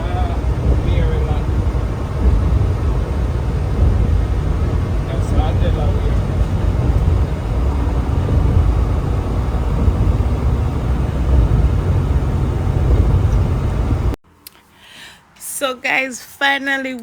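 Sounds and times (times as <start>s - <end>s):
truck rumbling at highway speed: 0.0s - 14.2s.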